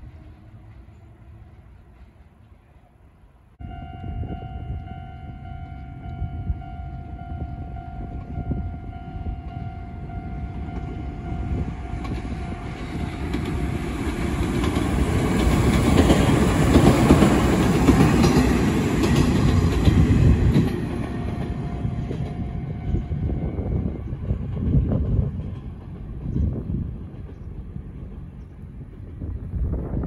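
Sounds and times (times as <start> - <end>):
electric train passing: 0.0 - 30.0
train wheels clattering: 12.0 - 22.4.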